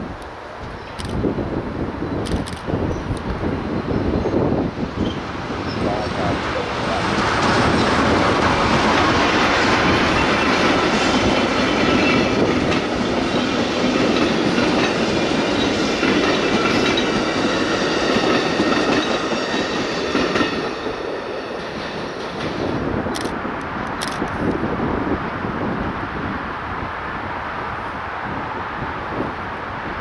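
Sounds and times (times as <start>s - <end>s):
train wheels clattering on rails: 5.0s - 24.6s.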